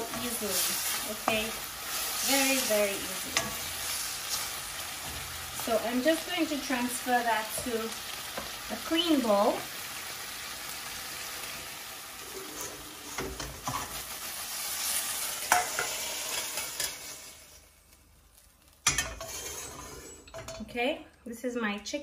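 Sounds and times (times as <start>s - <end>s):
chicken sizzling in a wok: 0.0s - 20.5s
utensil scraping a pan: 12.2s - 14.0s, 18.9s - 20.6s.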